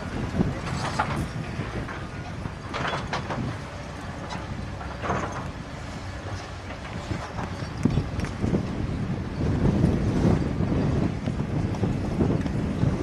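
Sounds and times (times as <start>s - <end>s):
heavy diesel machinery rumbling: 0.0s - 13.0s
rushing clattering noises: 0.3s - 8.6s.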